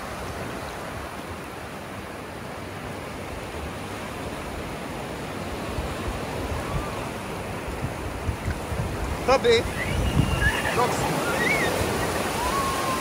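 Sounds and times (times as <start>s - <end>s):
ocean surf washing onto beach: 0.0s - 13.0s
wind thumps on microphone: 7.8s - 11.3s.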